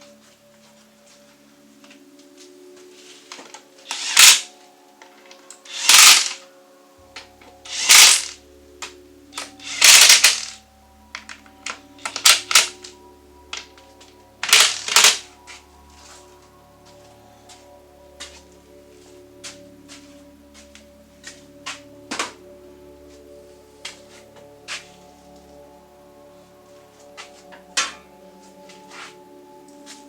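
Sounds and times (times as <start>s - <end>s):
background music: 0.0s - 30.0s
power driver driving screws: 3.9s - 4.5s, 5.7s - 6.4s, 7.7s - 8.4s, 9.6s - 10.6s, 12.1s - 12.7s, 14.4s - 15.2s.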